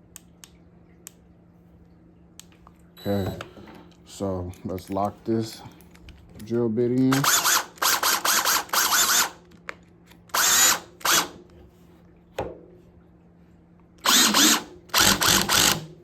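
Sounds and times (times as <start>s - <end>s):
cordless drill motor whining: 7.1s - 9.4s, 10.3s - 11.4s, 14.0s - 15.9s.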